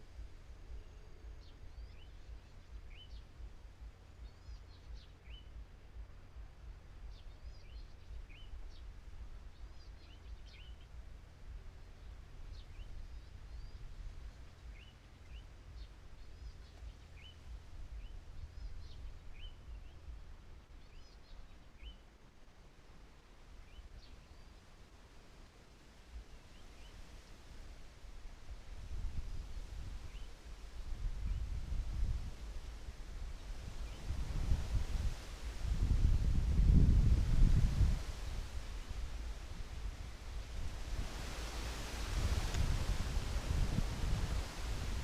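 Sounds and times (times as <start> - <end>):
steady low rumble: 0.0 - 21.0
small birds chirping: 0.2 - 22.2.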